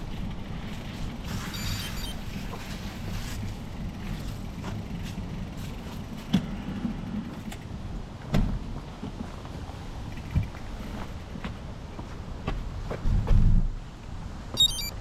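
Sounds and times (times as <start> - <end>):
tyres rumbling on trail: 0.0 - 11.7.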